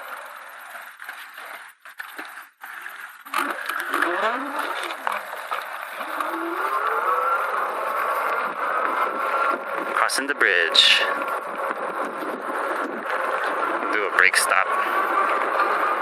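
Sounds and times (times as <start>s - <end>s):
electric motorbike motor whine: 3.2s - 10.5s, 11.1s - 16.0s
road noise: 3.3s - 16.0s
wind noise: 7.8s - 14.0s.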